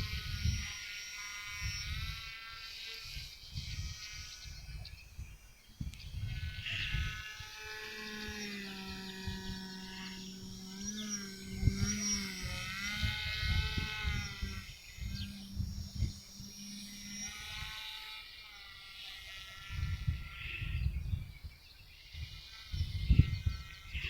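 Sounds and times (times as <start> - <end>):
wind buffeting microphone: 0.0 - 0.8, 1.5 - 17.9, 19.6 - 24.0
model paramotor motor whining: 0.0 - 24.0.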